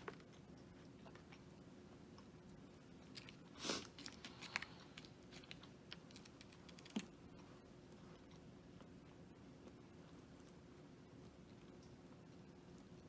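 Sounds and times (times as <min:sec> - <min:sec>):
food packaging crackling: 0:03.1 - 0:07.1.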